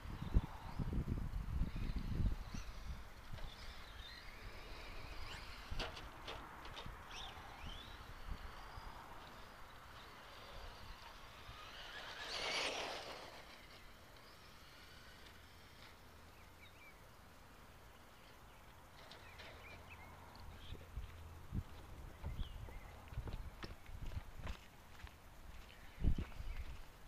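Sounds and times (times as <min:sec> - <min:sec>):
rc truck running: 0:00.1 - 0:20.7.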